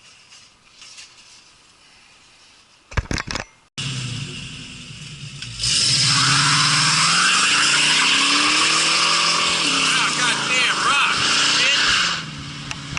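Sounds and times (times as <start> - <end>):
car engine revving: 3.8 - 12.9.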